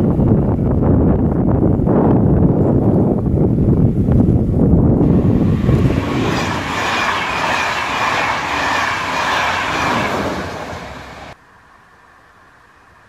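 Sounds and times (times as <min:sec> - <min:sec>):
train wheels rushing on rails: 0:05.0 - 0:11.4.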